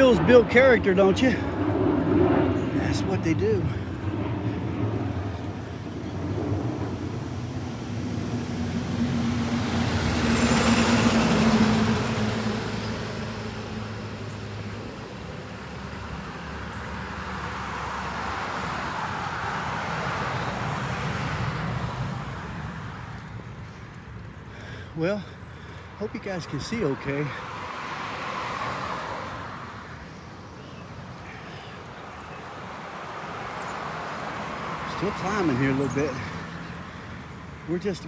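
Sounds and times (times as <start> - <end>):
traffic and road noise: 0.0 - 38.0
vehicle passing: 0.0 - 38.0.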